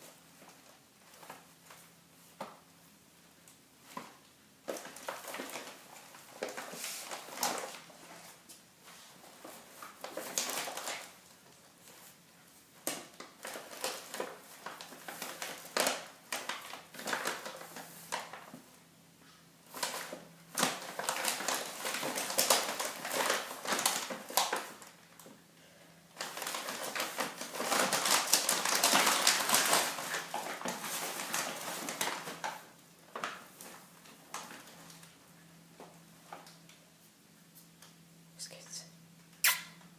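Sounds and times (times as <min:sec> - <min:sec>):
bag rustling and crinkling: 0:03.8 - 0:12.2, 0:19.7 - 0:25.0, 0:26.2 - 0:35.2.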